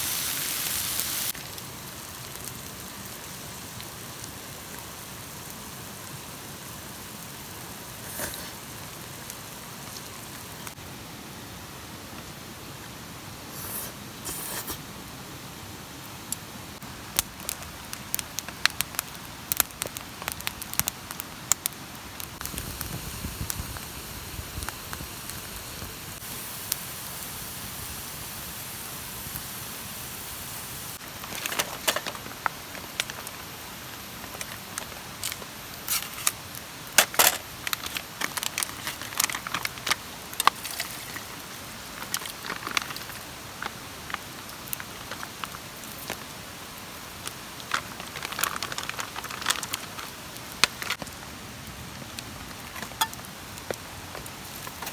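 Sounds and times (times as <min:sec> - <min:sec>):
campfire crackling: 0:00.0 - 0:11.0, 0:16.3 - 0:54.9
rain hiss: 0:00.0 - 0:54.9
raindrops hitting a tarp: 0:16.8 - 0:28.3, 0:31.0 - 0:54.9.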